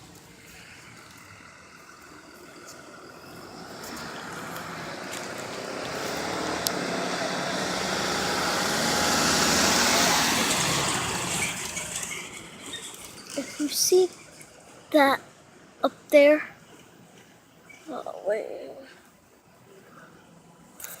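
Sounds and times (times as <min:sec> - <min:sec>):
vehicle approaching: 0:00.0 - 0:15.0.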